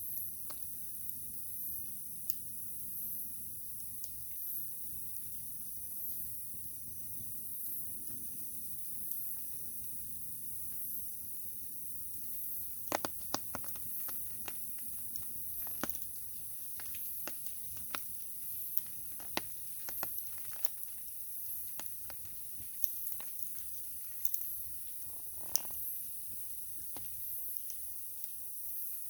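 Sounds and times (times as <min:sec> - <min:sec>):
wood fire crackling: 0:10.6 - 0:29.0
sharp pops: 0:12.5 - 0:23.4.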